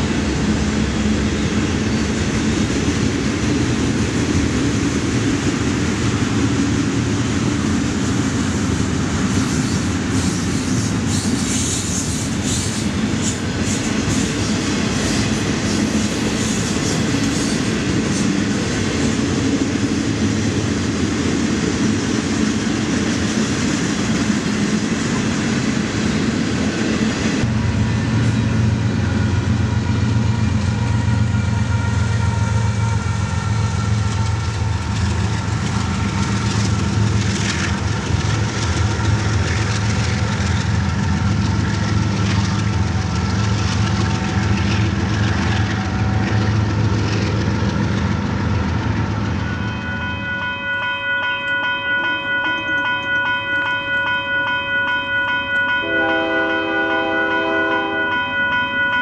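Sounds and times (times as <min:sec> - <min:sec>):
freight train wheels rumbling: 0:00.0 - 0:59.0
train horn chord: 0:49.4 - 0:59.0.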